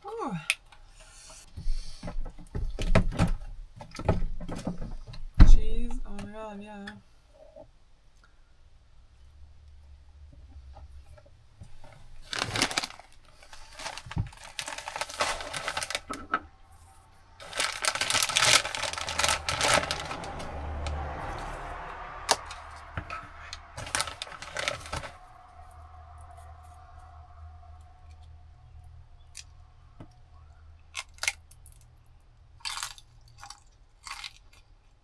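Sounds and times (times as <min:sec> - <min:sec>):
packaging rustling and crinkling: 0:11.6 - 0:25.6.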